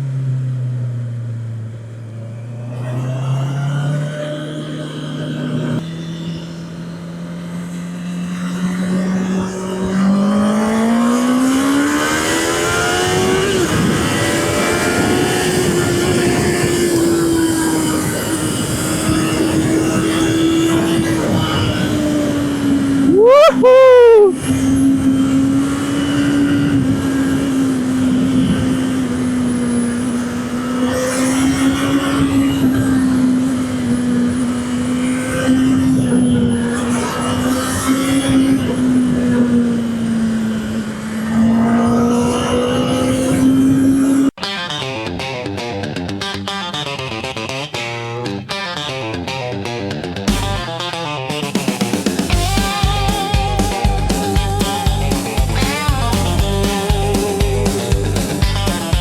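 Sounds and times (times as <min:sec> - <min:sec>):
motorcycle engine revving: 0:00.0 - 0:59.0
wind noise: 0:08.6 - 0:44.3.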